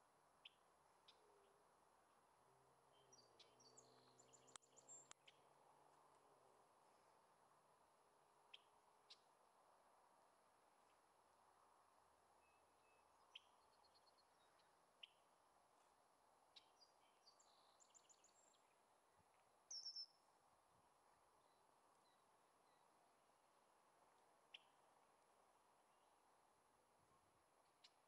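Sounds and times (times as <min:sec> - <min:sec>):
low background hiss: 0:00.0 - 0:28.0
small bird chirps: 0:02.9 - 0:05.5, 0:08.5 - 0:09.3, 0:12.4 - 0:15.2, 0:16.5 - 0:20.3, 0:24.4 - 0:24.8, 0:27.6 - 0:28.0.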